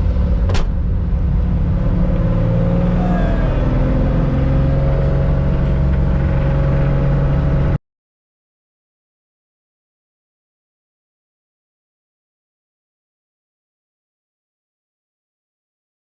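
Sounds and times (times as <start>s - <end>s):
car engine running: 0.0s - 7.8s.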